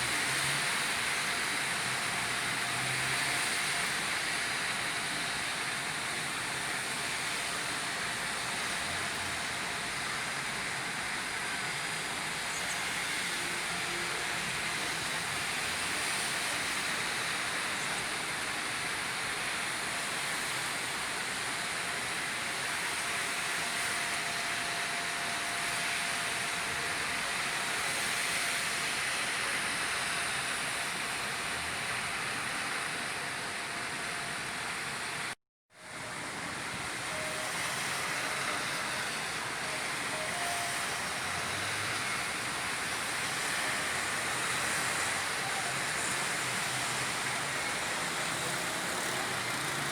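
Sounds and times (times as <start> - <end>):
steady rain falling: 35.9 - 49.9.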